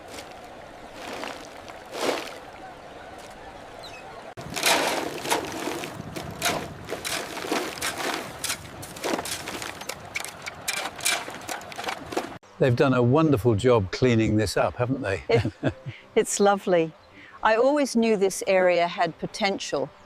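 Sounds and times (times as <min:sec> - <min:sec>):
water splashes and knocks: 0:00.0 - 0:03.4, 0:04.3 - 0:12.4
running water: 0:00.0 - 0:12.4.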